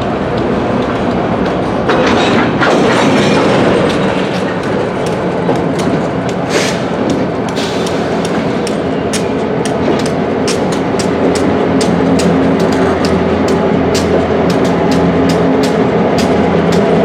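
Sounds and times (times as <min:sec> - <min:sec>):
diesel locomotive engine hum: 0:00.0 - 0:17.0
train wheels clicking over rail joints: 0:00.0 - 0:17.0.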